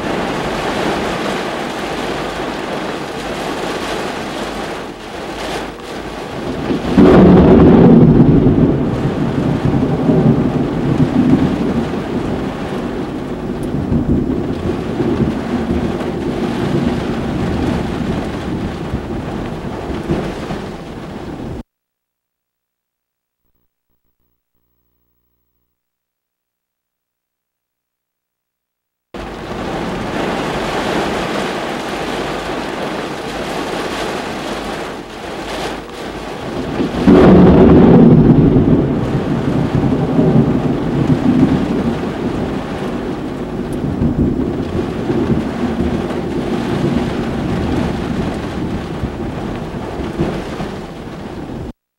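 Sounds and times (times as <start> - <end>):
steady rain: 0.0 - 21.6, 29.2 - 51.8
loud thunder rumbling: 6.2 - 21.6, 29.2 - 35.0, 36.1 - 51.7.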